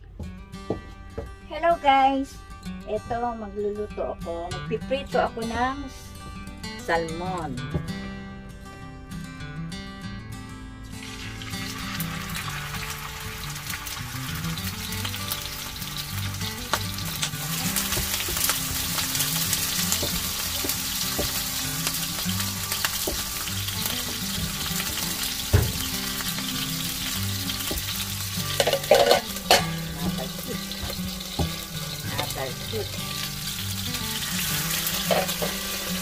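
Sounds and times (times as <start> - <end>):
fish sizzling in hot oil: 11.0 - 36.0
knocks in a pan: 24.0 - 26.1, 28.5 - 31.6
heavy thump: 25.5 - 25.9.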